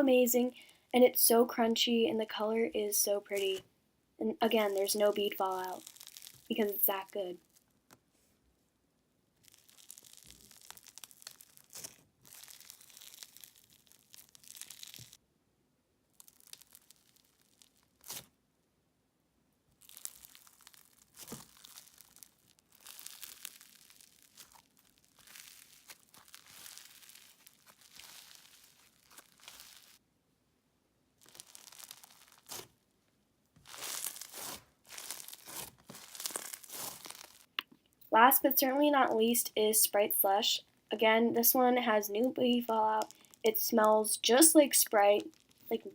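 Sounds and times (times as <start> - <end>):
slime beads crackling and popping: 4.6 - 7.6, 9.4 - 15.2, 16.1 - 18.3, 19.8 - 30.0, 31.2 - 32.8, 33.6 - 37.7, 42.3 - 45.9.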